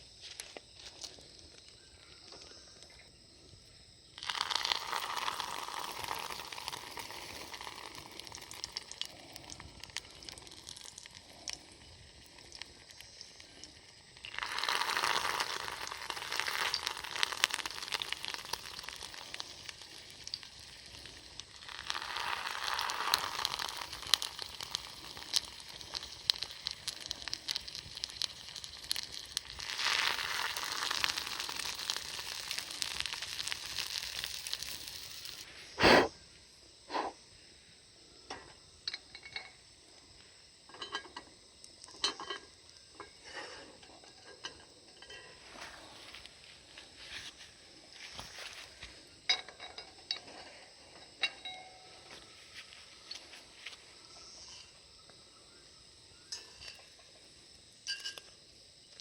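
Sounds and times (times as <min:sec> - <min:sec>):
food sizzling in a pan: 0:04.2 - 0:35.5.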